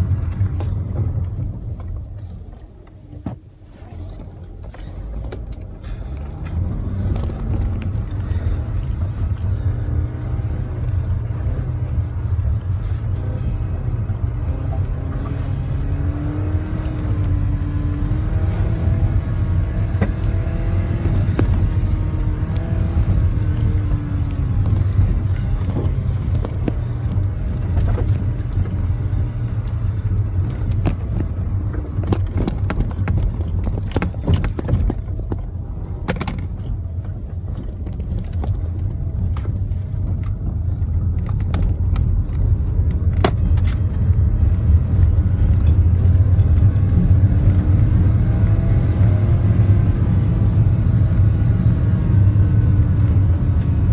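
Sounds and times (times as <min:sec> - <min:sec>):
car engine and road rumble: 0:00.0 - 0:53.9
clicks and rattles: 0:19.8 - 0:47.9.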